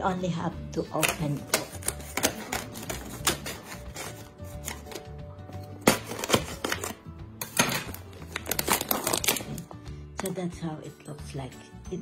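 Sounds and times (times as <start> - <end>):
background music: 0.0 - 12.0
knife tearing plastic film: 1.0 - 5.1, 5.8 - 7.0, 7.6 - 9.7.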